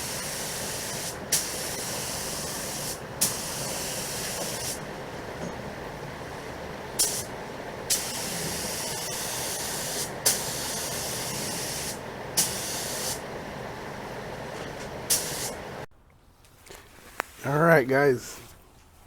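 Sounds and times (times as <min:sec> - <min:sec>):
spray gun hissing: 0:00.0 - 0:04.8, 0:07.0 - 0:13.3, 0:15.1 - 0:15.8
spray gun trigger burst: 0:00.0 - 0:04.8, 0:07.0 - 0:07.3, 0:07.9 - 0:13.2, 0:15.1 - 0:15.6.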